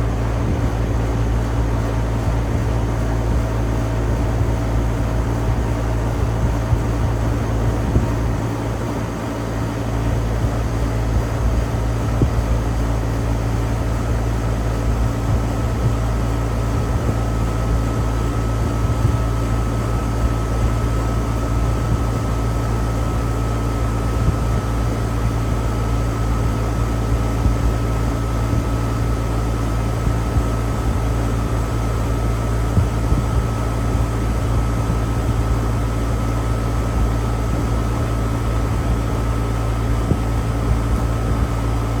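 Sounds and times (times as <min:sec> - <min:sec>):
air-conditioner unit humming: 0:00.0 - 0:42.0
thin steady whine: 0:00.0 - 0:42.0.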